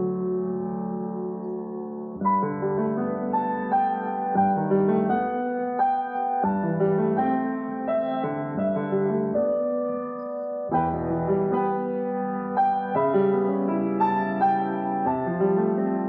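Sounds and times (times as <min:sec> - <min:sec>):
solo piano piece: 0:00.0 - 0:16.0.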